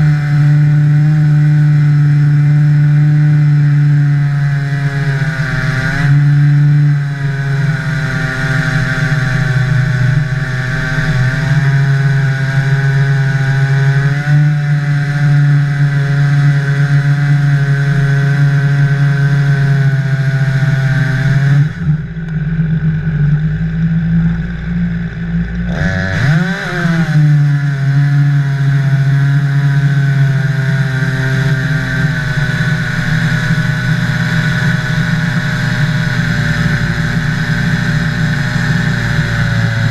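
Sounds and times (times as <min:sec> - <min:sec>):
chainsaw cutting log: 0:00.0 - 0:22.5, 0:25.5 - 0:39.9.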